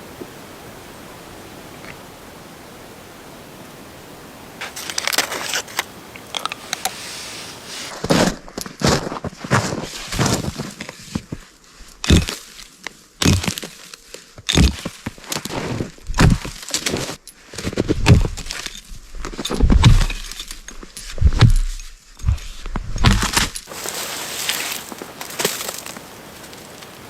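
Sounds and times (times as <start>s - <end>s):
crunching and cracking impacts: 7.9s - 27.0s.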